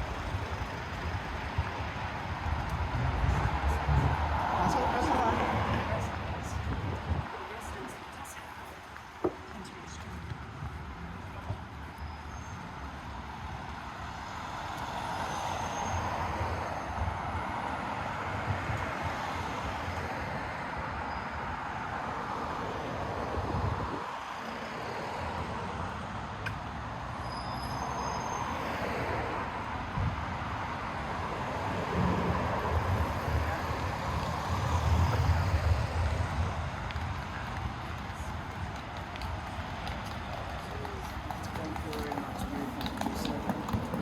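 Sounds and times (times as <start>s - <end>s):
city street traffic: 0.0s - 44.0s.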